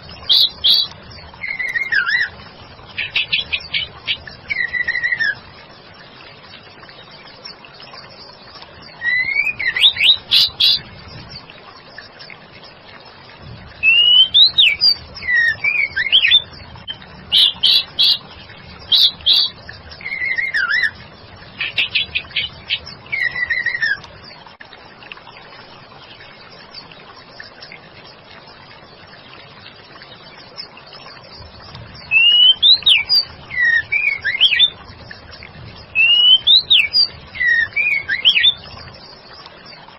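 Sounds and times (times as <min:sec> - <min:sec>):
bird whistling song: 0:00.1 - 0:02.3, 0:03.0 - 0:05.4, 0:08.9 - 0:10.8, 0:13.8 - 0:18.2, 0:18.9 - 0:21.0, 0:21.6 - 0:24.1, 0:32.0 - 0:34.8, 0:35.9 - 0:38.7.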